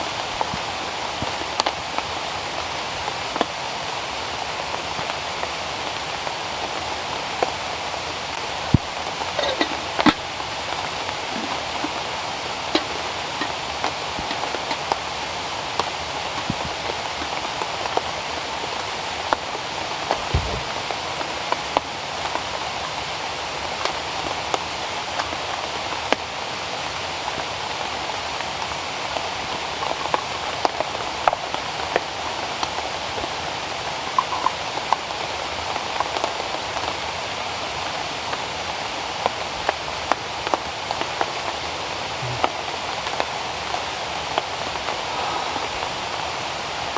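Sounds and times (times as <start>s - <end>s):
steady rain hiss: 0.0s - 46.9s
raindrop ticks: 0.4s - 1.8s, 8.3s - 18.2s, 34.1s - 37.0s
low thud: 20.3s - 20.7s.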